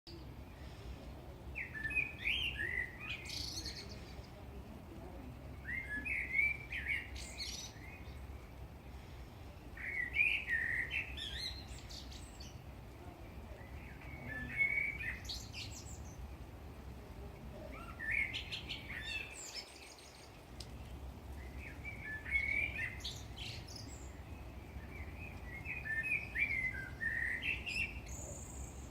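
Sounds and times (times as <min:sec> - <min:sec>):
blackbird singing: 0:01.5 - 0:04.4, 0:05.5 - 0:08.4, 0:09.8 - 0:12.6, 0:13.4 - 0:16.3, 0:17.5 - 0:28.9.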